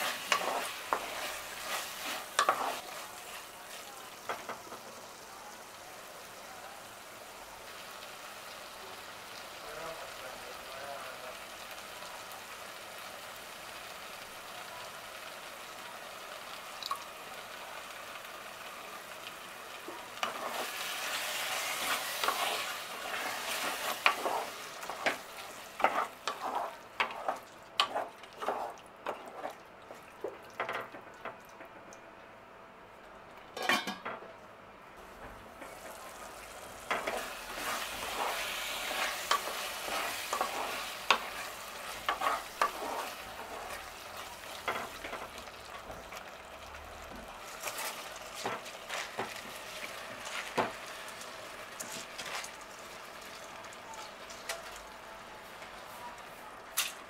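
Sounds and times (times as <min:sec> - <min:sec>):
spoon scraping and clinking pot: 0:00.0 - 0:02.9
food sizzling in hot oil: 0:00.0 - 0:29.6, 0:35.0 - 0:56.0.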